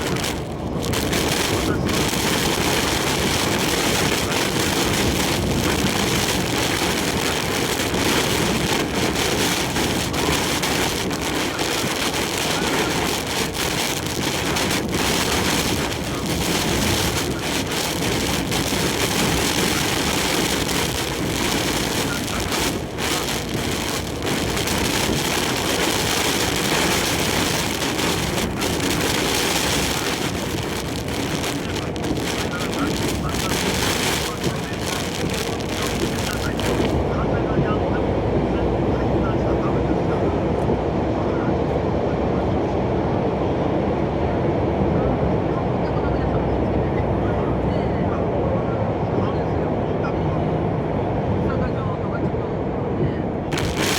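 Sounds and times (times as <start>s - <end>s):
truck running and road noise: 0.0s - 39.2s
heavy rain and wind on truck: 0.0s - 53.9s.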